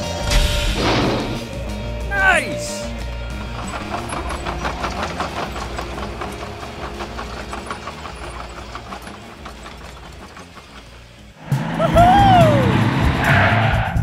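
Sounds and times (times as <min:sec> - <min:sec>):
toy crane engine chugging: 0:03.3 - 0:12.1.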